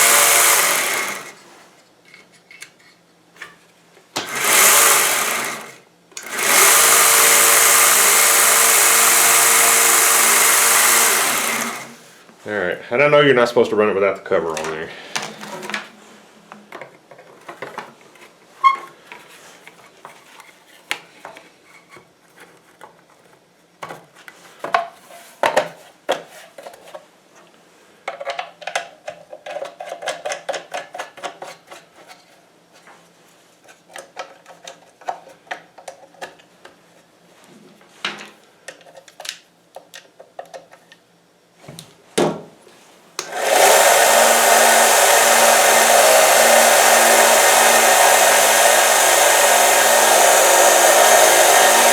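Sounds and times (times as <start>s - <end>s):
belt sander motor humming: 0.0s - 1.4s, 4.2s - 12.1s, 43.2s - 51.9s.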